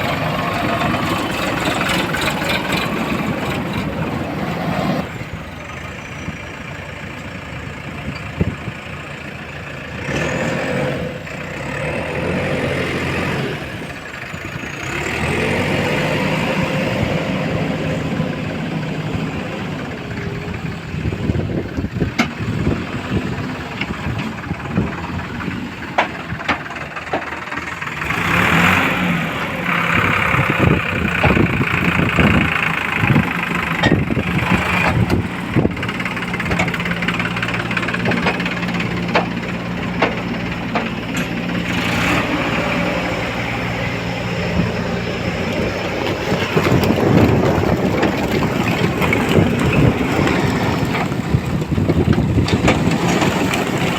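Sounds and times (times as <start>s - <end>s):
diesel engines running: 0.0s - 53.9s
knocks and clanks: 31.2s - 41.8s.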